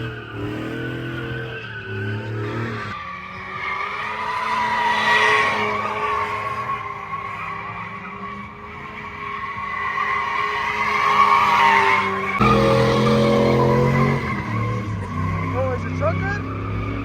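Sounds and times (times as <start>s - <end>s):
tires squealing: 0.0s - 17.0s
car engine revving hard: 12.4s - 17.0s.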